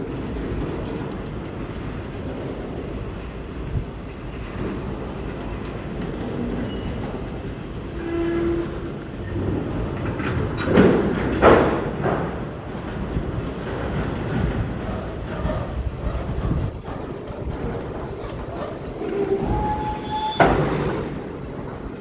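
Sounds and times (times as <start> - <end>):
freight cars rumbling past: 0.0 - 22.0.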